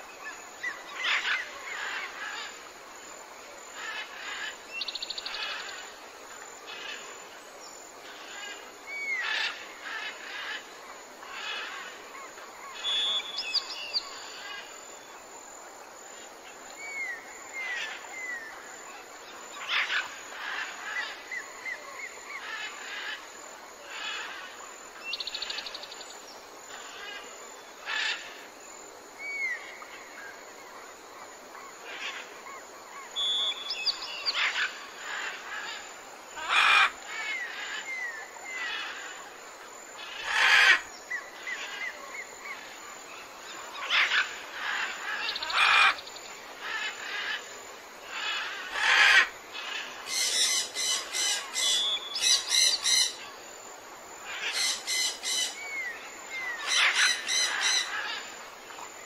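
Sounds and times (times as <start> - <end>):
birds calling and chirping: 31.9 - 39.2, 40.0 - 47.4, 48.0 - 53.4, 54.2 - 59.0
sharp bird calls: 48.2 - 53.2, 54.3 - 58.3.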